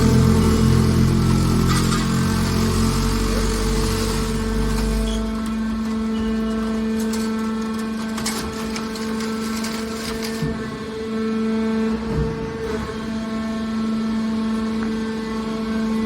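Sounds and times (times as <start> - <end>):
baler motor hum: 0.0 - 7.8.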